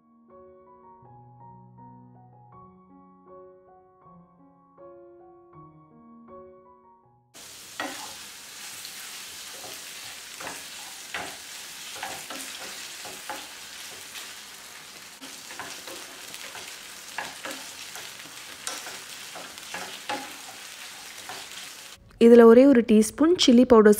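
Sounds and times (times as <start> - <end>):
food sizzling in hot oil: 7.4 - 22.0
spatula knocking against pan: 7.8 - 8.1, 9.6 - 14.2, 15.2 - 21.4.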